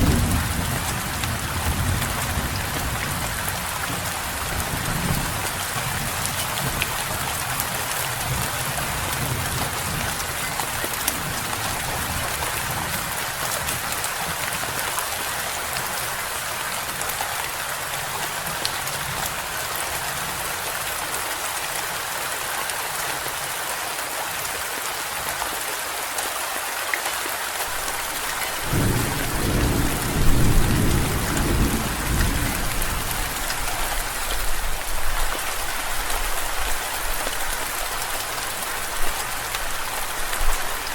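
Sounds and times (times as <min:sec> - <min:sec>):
thunder rumbling: 0:00.0 - 0:06.8, 0:27.8 - 0:34.8
heavy rain falling: 0:00.0 - 0:40.9.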